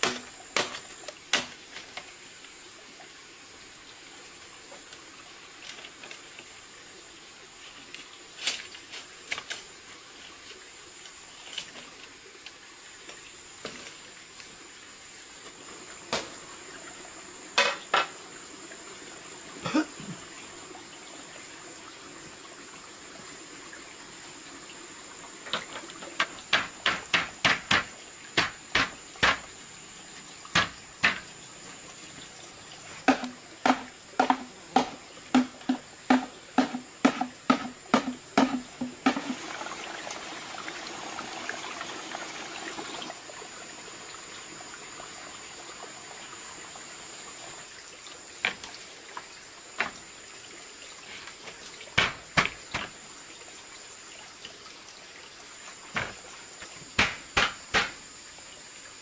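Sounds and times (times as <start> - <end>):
steady hiss: 0.0 - 59.0
sharp knocks: 25.5 - 29.5, 30.5 - 31.3, 33.1 - 39.3, 52.0 - 52.9, 57.0 - 58.0.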